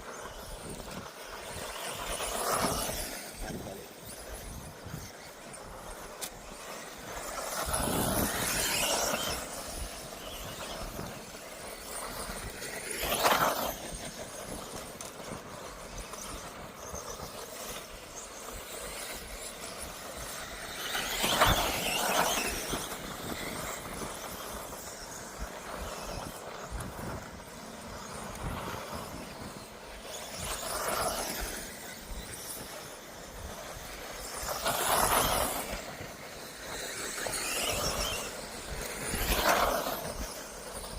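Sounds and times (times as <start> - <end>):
electric toy cars whining: 0.0 - 40.9.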